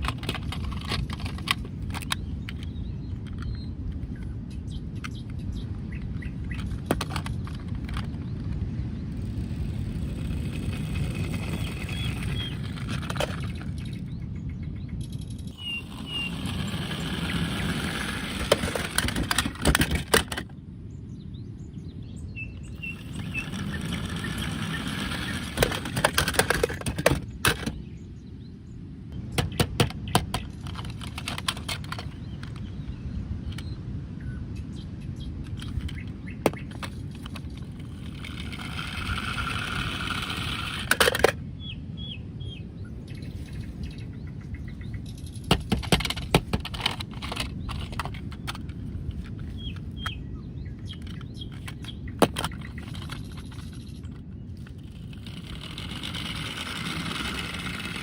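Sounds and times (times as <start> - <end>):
sharp clicks and knocks: 0.0 - 4.3, 5.0 - 8.6, 9.2 - 14.2, 15.0 - 20.5, 22.8 - 27.8, 29.3 - 32.7, 35.5 - 41.4, 44.9 - 50.2, 50.8 - 58.0
high bird chirps: 13.6 - 18.2, 21.2 - 25.5.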